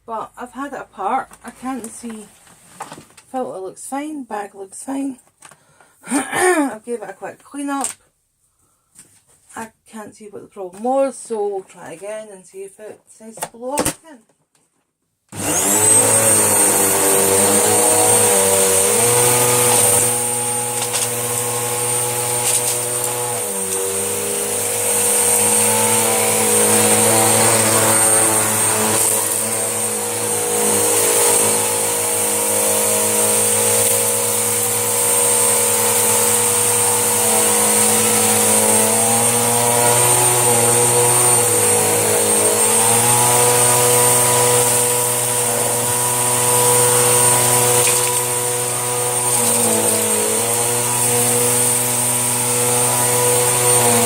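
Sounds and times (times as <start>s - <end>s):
vacuum cleaner running: 15.3s - 54.0s.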